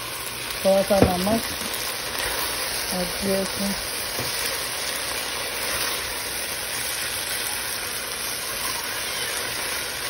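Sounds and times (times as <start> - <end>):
vegetables sizzling in a wok: 0.0 - 10.0.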